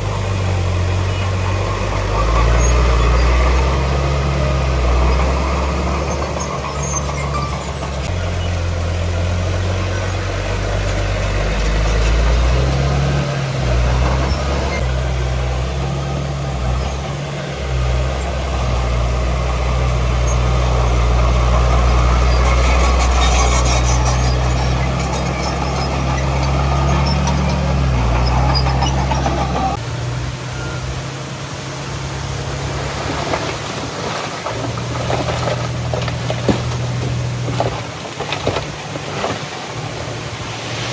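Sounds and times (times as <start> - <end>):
heavy machinery diesel engine: 0.0 - 40.9.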